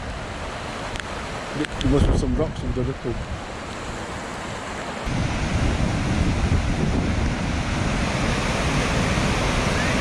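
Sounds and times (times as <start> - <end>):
floodwater rushing: 0.0 - 10.0
wind buffeting microphone: 1.6 - 4.1, 5.0 - 10.0.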